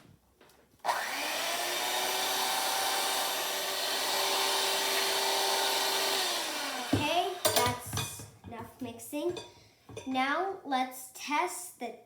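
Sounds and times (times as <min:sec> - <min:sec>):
electric mixer whining: 0:00.8 - 0:07.6.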